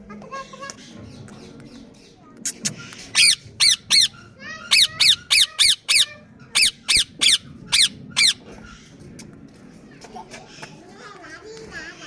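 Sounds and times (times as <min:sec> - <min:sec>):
parakeet screeching: 0:03.1 - 0:08.9.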